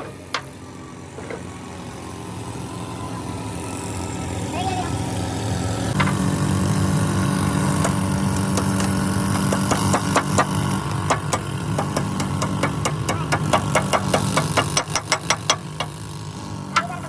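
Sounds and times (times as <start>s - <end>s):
engine idling: 0.0s - 17.0s
sharp knocks: 7.8s - 16.0s.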